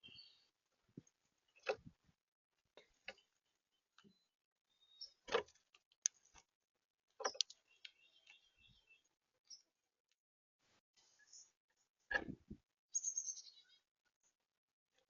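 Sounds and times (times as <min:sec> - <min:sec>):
faint high bird chirps: 0:00.0 - 0:00.5, 0:03.2 - 0:05.3, 0:07.2 - 0:09.7, 0:11.0 - 0:11.8, 0:12.9 - 0:13.9
birds tapping and knocking: 0:07.2 - 0:08.4.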